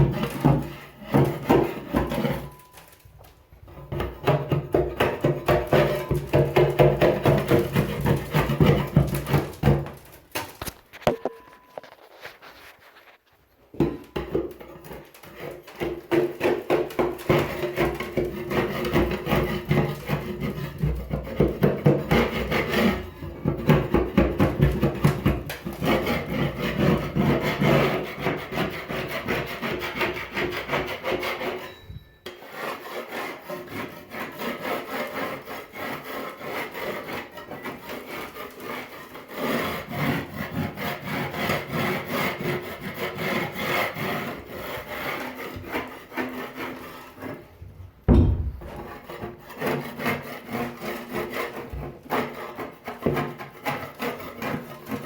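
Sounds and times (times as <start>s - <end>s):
paint scraping strokes: 10.8s - 13.7s.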